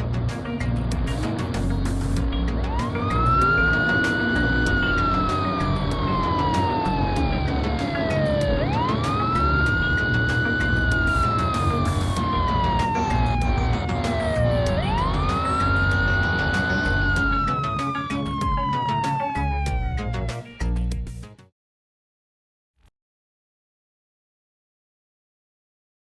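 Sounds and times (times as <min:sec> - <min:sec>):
background music: 0:00.0 - 0:21.5
emergency vehicle siren wailing: 0:02.5 - 0:20.5.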